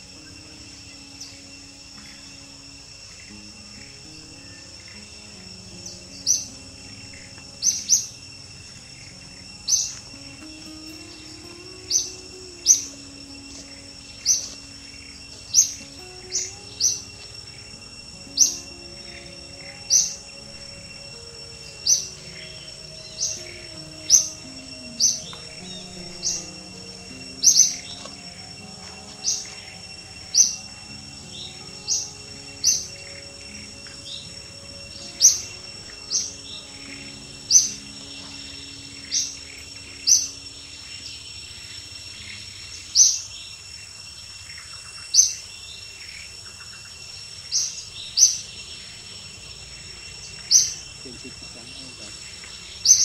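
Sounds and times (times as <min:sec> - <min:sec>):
bird chirping: 0:00.0 - 0:53.0
high insect drone: 0:00.0 - 0:53.0.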